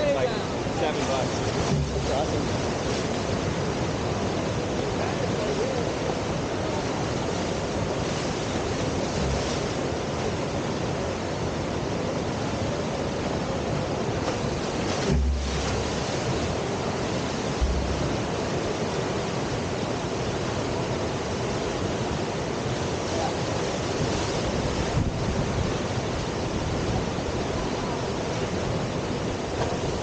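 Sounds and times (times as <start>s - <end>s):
river water rushing: 0.0s - 30.0s
low thump: 1.7s - 2.1s, 15.0s - 15.8s, 17.6s - 18.3s.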